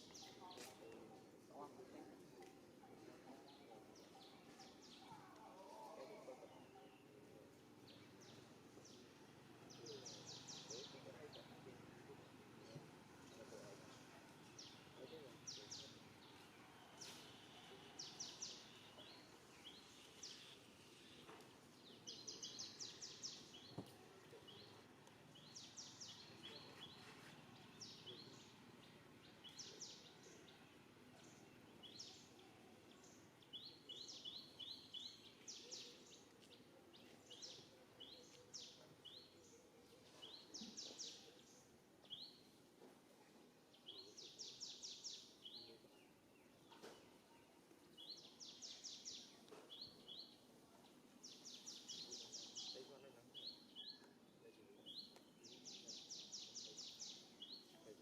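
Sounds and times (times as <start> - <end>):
faint birds chirping: 0.0 - 58.0
low outdoor background noise: 0.0 - 58.0.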